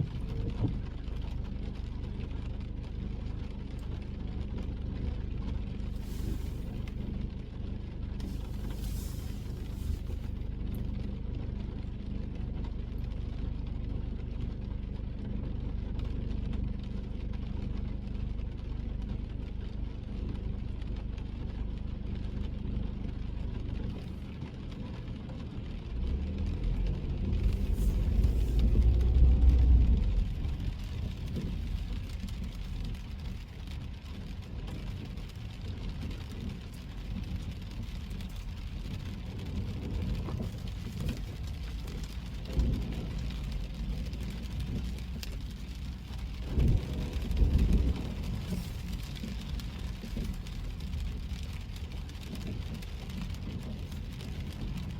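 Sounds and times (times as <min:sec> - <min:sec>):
car engine and tyre rumble: 0:00.0 - 0:54.9
louder low rumble: 0:04.8 - 0:07.3, 0:08.1 - 0:11.0, 0:23.8 - 0:54.9
wet road hiss: 0:05.9 - 0:07.0, 0:08.2 - 0:10.5, 0:27.4 - 0:33.7, 0:40.4 - 0:54.0.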